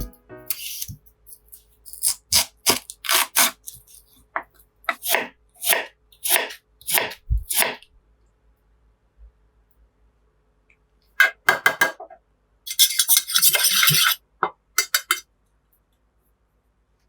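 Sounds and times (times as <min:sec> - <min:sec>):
clattering scrape of dishes: 0:12.7 - 0:14.2
dishes and cutlery clinking: 0:14.8 - 0:15.2.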